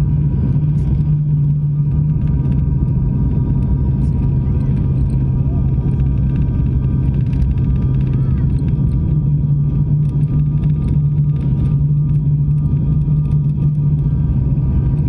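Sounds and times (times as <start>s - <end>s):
airliner engine drone in cabin: 0.0s - 15.0s.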